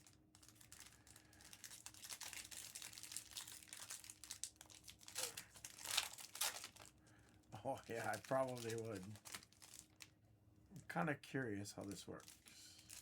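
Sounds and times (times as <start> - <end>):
foil wrappers torn and crinkled: 0.0 - 7.0, 7.8 - 10.1, 12.1 - 13.0.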